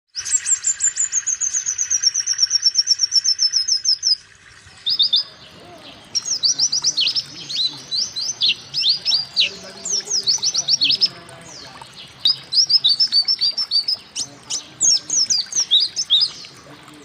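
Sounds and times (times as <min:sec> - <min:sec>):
bird trilling: 0:04.8 - 0:16.6
sweeping bird chirps: 0:04.8 - 0:16.6.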